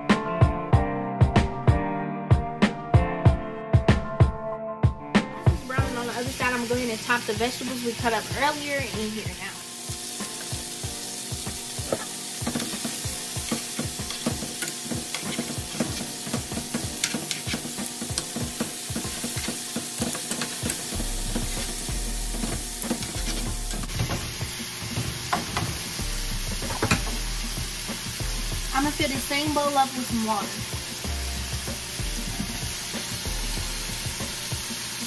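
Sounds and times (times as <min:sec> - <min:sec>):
food sizzling in a frying pan: 0:05.5 - 0:35.0
utensil scraping a pan: 0:11.9 - 0:23.9.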